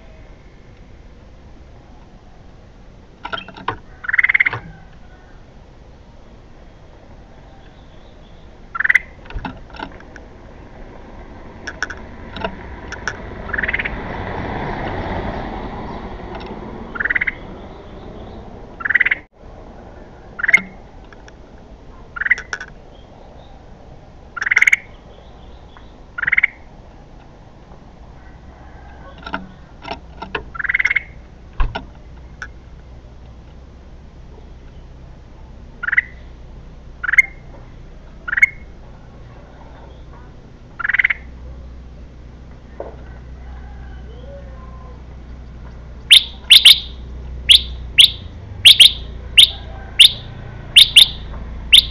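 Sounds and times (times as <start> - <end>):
bulbul sharp calls: 3.3 - 5.4, 7.4 - 9.2, 13.4 - 14.0, 16.9 - 19.3, 20.4 - 20.8, 22.1 - 23.7, 24.3 - 26.7, 30.5 - 31.2, 35.8 - 36.4, 37.0 - 38.8, 39.7 - 41.4, 43.9 - 51.9.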